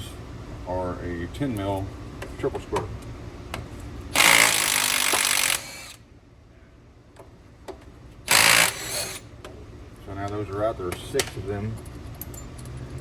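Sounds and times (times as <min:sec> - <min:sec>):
power tool spinning bolts: 0:04.2 - 0:06.0, 0:08.3 - 0:09.3.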